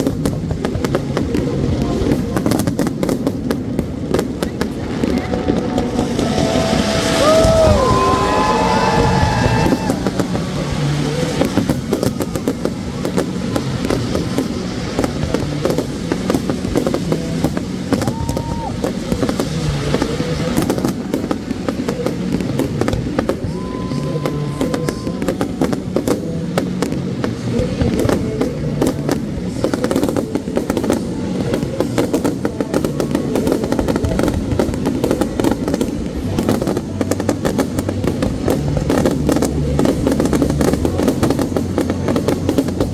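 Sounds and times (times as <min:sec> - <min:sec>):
fireworks bangs and crackling: 0:00.0 - 0:42.9
low rumble: 0:03.7 - 0:20.5.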